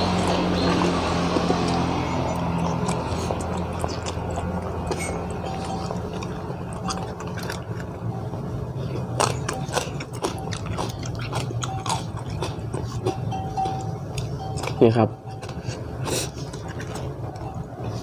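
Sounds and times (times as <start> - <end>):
person chewing crunchy food: 0.0 - 18.0.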